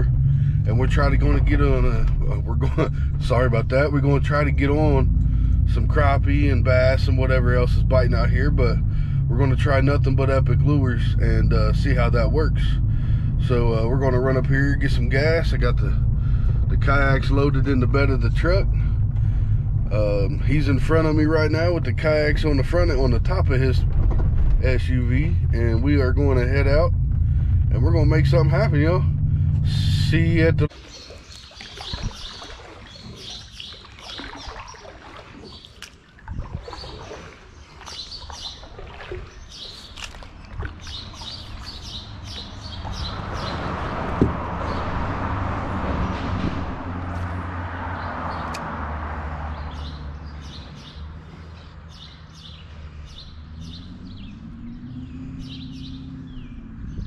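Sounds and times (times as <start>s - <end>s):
low steady hum: 0.0s - 30.7s
small birds chirping: 30.7s - 44.9s, 47.9s - 48.6s, 49.4s - 57.0s.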